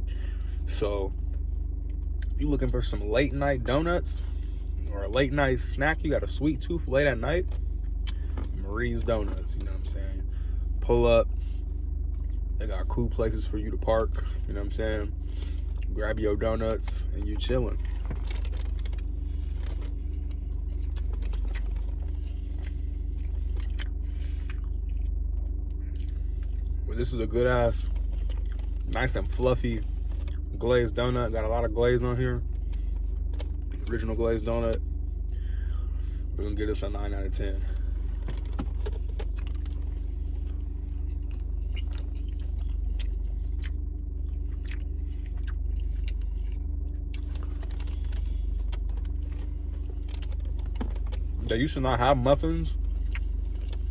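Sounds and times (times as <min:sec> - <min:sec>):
steady low hum: 0:00.0 - 0:53.9
person chewing food: 0:17.8 - 0:26.8, 0:28.0 - 0:28.9, 0:37.8 - 0:51.3, 0:52.8 - 0:53.9
person chewing with mouth clicks: 0:41.1 - 0:46.5, 0:53.0 - 0:53.8.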